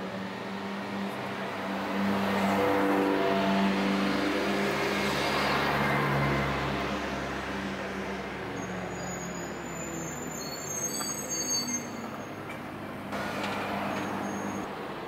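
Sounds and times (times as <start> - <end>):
thin high squeal: 8.9 - 12.4, 14.1 - 14.7.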